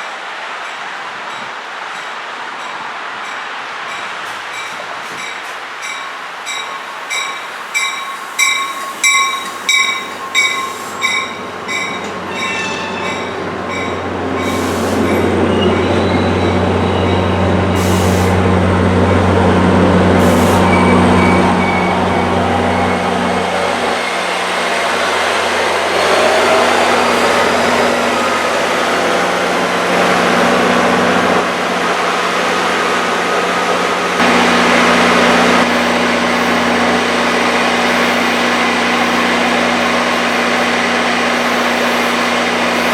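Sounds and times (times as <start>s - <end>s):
train rumbling: 0.0s - 42.9s
train wheel squeal: 4.6s - 18.4s, 20.2s - 24.1s
bell ringing: 5.3s - 17.4s.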